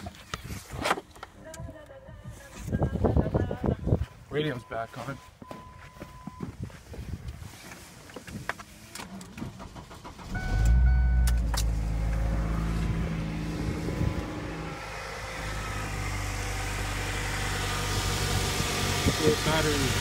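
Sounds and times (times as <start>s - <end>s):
car engine starting and idling: 8.8s - 20.0s.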